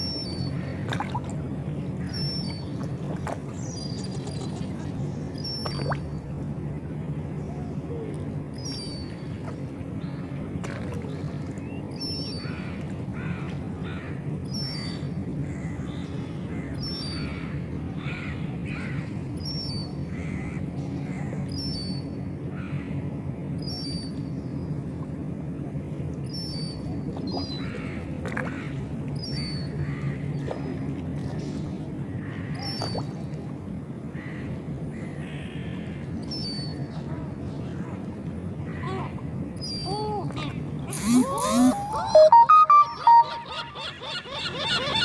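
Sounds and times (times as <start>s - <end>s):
gulls calling: 39.8s - 45.0s
steady low hum: 40.5s - 45.0s.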